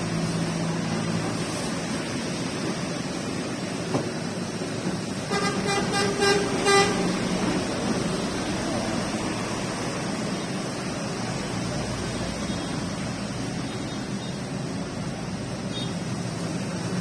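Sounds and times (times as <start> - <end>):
rain hissing: 0.0 - 17.0
vehicle horn toots: 5.3 - 7.1.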